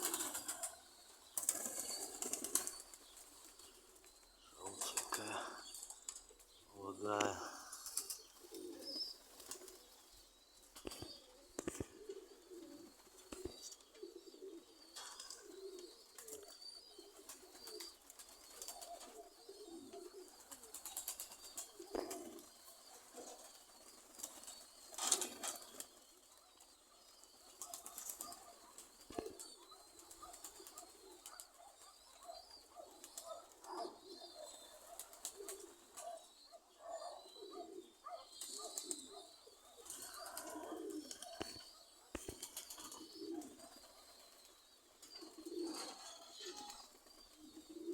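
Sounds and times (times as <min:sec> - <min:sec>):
pigeons cooing: 0:00.0 - 0:47.9
pigeon wing flaps: 0:01.4 - 0:02.8.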